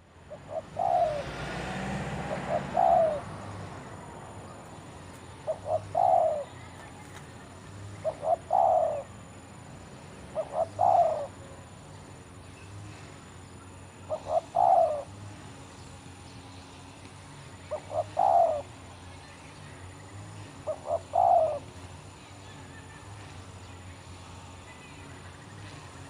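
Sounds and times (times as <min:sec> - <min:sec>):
dove cooing: 0:00.2 - 0:03.9, 0:05.0 - 0:09.4, 0:10.3 - 0:11.8, 0:14.0 - 0:15.2, 0:17.7 - 0:18.8, 0:20.6 - 0:22.0.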